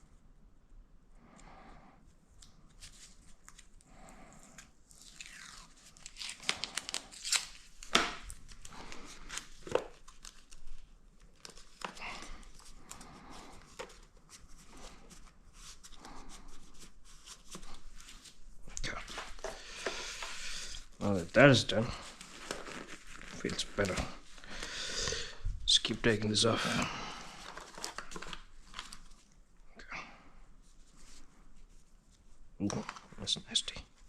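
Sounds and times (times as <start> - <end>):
adhesive tape ripping off a roll: 4.9 - 8.4.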